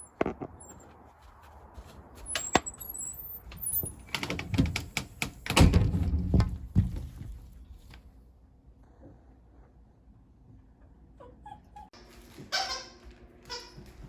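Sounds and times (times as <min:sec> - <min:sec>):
sharp clicks and knocks: 0:03.5 - 0:07.1.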